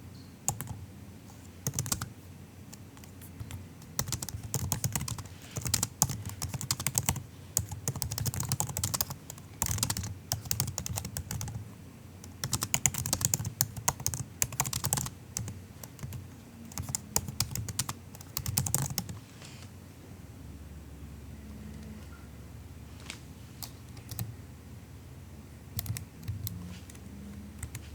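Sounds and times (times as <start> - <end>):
typing on laptop keyboard: 0.5 - 0.8, 1.6 - 2.1, 2.7 - 11.6, 12.2 - 19.2, 23.6 - 24.3, 25.8 - 26.6.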